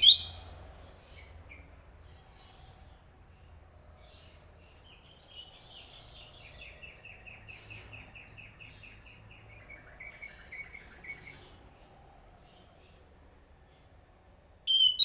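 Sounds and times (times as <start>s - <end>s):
thrush singing repeated notes: 0.0s - 0.3s.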